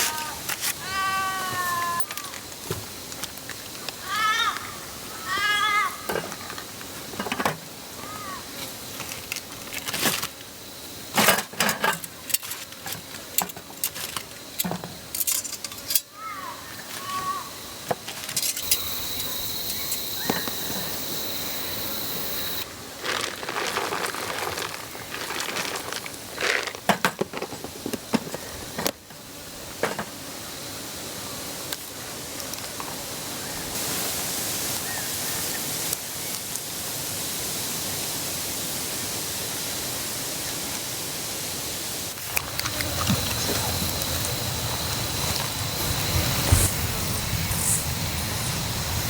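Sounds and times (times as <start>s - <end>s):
steady hiss: 0.0s - 49.0s
thin high tone: 18.6s - 22.6s.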